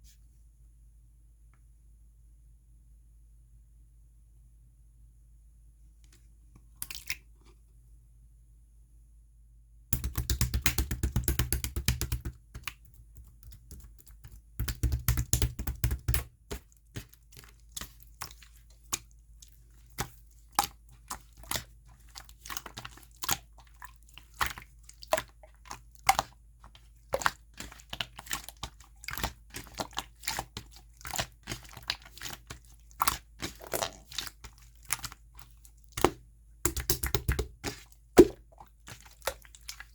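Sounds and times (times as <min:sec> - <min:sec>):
slime crackling and popping: 0:27.1 - 0:39.9.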